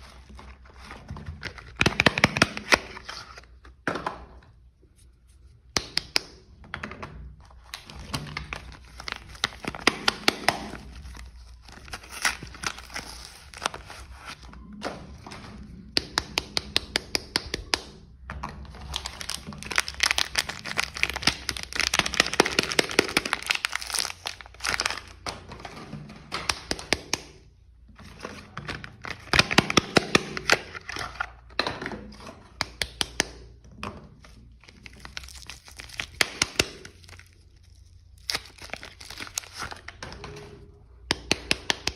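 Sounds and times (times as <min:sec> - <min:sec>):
wrappers crinkling and tearing: 0:07.7 - 0:14.5, 0:18.8 - 0:25.2, 0:34.5 - 0:40.0.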